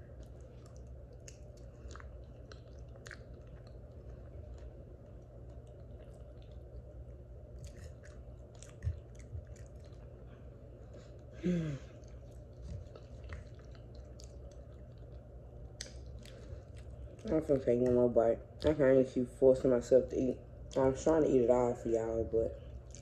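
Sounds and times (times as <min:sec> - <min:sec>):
close-up chewing: 0:00.0 - 0:19.2, 0:22.5 - 0:23.0
steady low hum: 0:00.0 - 0:23.0
wet mouth clicks: 0:12.0 - 0:17.2.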